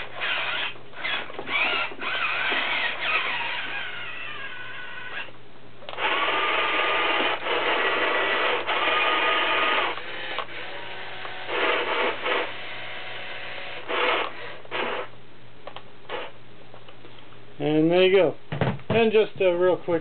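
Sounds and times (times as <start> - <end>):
toy electric motors whirring: 0.0 - 5.3.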